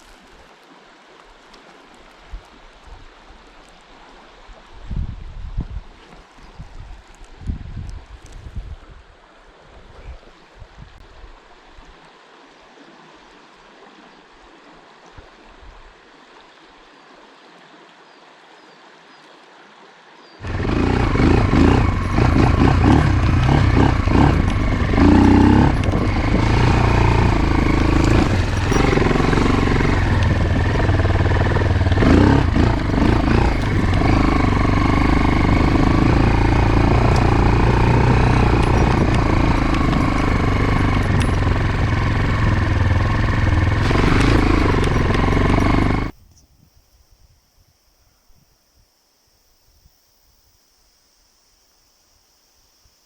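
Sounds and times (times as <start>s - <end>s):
wind noise: 4.4s - 11.4s, 20.4s - 48.9s
motorcycle engine running: 20.4s - 46.2s
water trickling: 20.4s - 46.2s.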